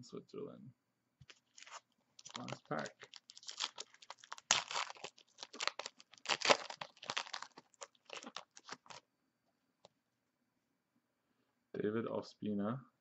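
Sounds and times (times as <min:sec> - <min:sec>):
wrapper tearing and crinkling: 0:01.3 - 0:09.0.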